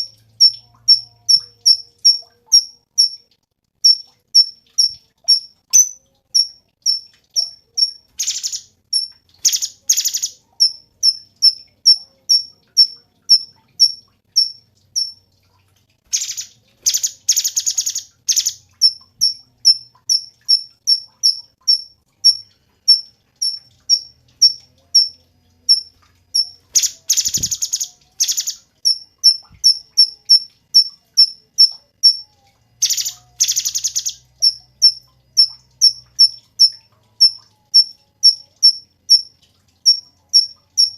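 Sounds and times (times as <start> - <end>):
bird chirping: 0.0 - 3.2, 3.8 - 15.2, 16.1 - 39.3
bird rattling trills: 26.4 - 30.1.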